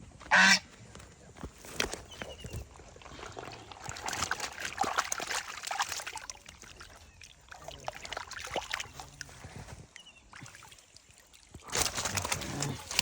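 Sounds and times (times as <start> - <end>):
water splashing and trickling: 1.7 - 13.0.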